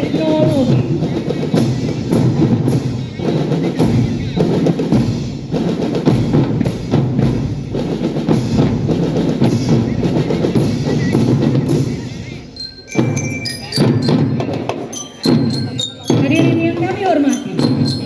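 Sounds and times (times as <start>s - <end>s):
marching drum band playing: 0.0s - 18.0s.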